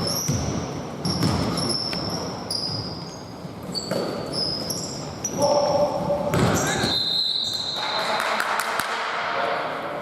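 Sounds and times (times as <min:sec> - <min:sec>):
basketball bouncing on court: 0:00.0 - 0:02.9, 0:06.3 - 0:06.9
sneakers squeaking on floor: 0:00.0 - 0:08.1.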